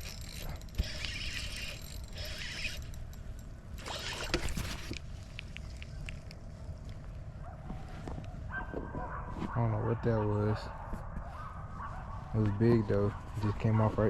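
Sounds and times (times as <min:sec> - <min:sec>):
fishing reel whirring: 0:00.0 - 0:05.0.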